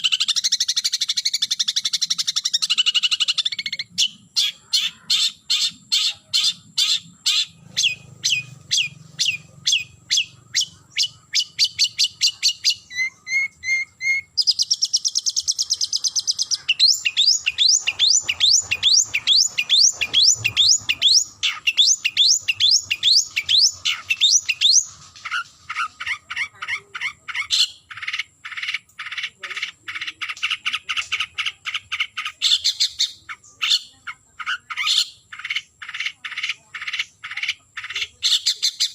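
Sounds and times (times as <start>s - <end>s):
shrike chattering song: 0.0s - 38.9s.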